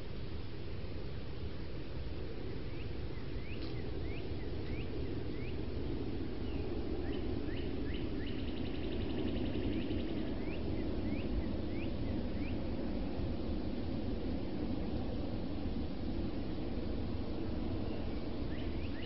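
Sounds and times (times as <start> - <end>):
steady low rumble: 0.0 - 19.0
songbird chirping: 2.4 - 12.7, 17.7 - 19.0
bird trill: 2.7 - 5.6, 6.5 - 12.6, 17.9 - 19.0.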